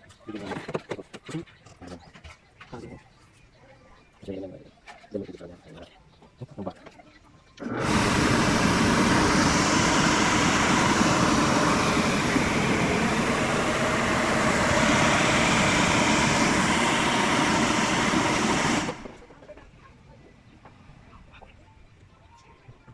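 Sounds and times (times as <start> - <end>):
loud mechanical rushing noise: 7.6 - 19.3.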